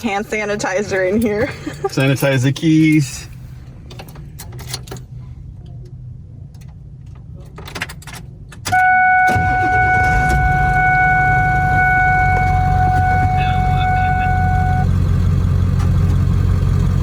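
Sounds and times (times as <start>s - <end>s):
diesel engine starting and idling: 7.7s - 17.0s
high-pitched whine: 8.8s - 14.9s.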